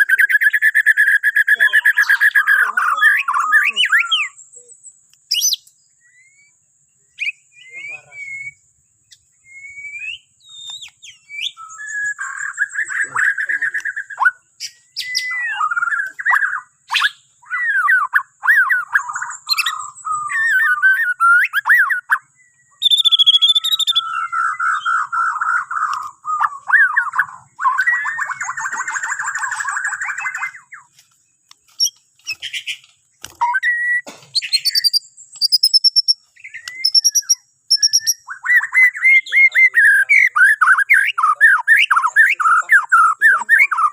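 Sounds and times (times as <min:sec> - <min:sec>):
bird singing trills and whistles: 0:00.0 - 0:43.9
sharp bird clicks: 0:04.9 - 0:06.5, 0:10.0 - 0:15.2, 0:25.6 - 0:27.3, 0:28.0 - 0:38.6.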